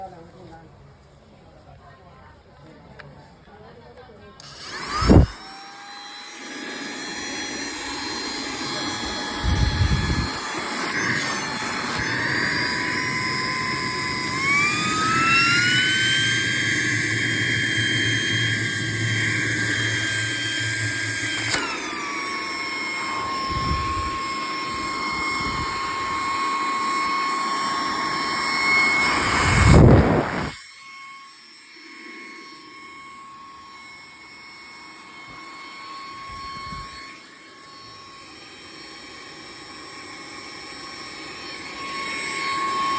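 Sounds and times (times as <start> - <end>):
hand vacuum cleaner whining: 4.4 - 42.9
loud rush: 28.4 - 30.6.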